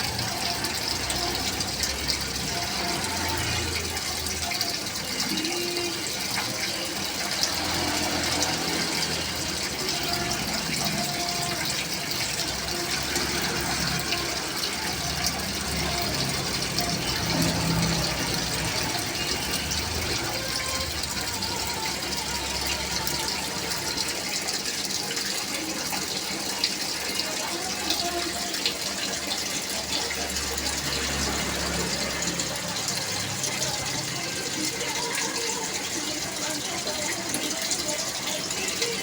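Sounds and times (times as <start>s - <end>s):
water splashing into fish tank: 0.0s - 39.0s.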